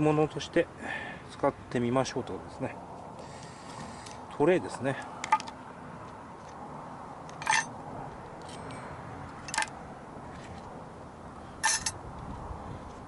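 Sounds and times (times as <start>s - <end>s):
tableware clinking: 7.4s - 7.7s, 11.6s - 12.0s.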